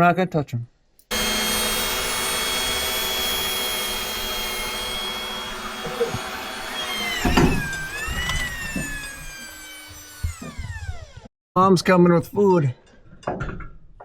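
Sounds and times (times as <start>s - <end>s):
machine motor whining: 1.1s - 11.3s.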